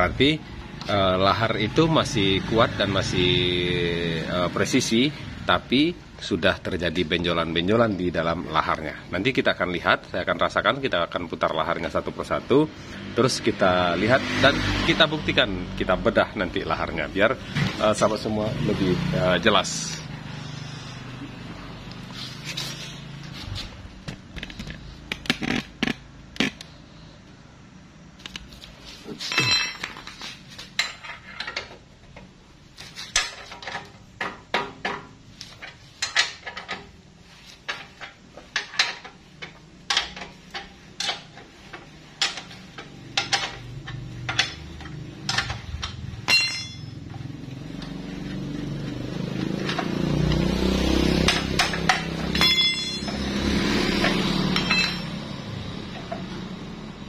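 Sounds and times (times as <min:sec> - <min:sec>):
metal tools clinking and knocking: 0:29.2 - 0:31.8, 0:33.1 - 0:37.0, 0:37.7 - 0:41.4, 0:42.2 - 0:47.3, 0:51.2 - 0:56.4.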